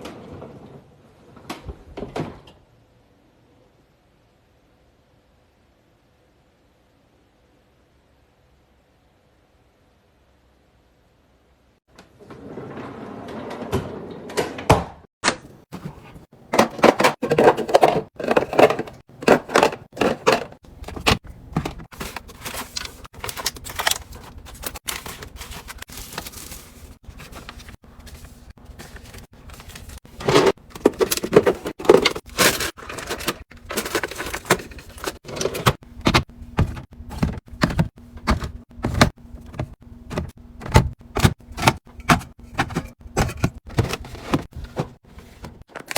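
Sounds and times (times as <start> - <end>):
food containers clicking and knocking: 15.2 - 45.9
packaging rustling: 15.6 - 40.3.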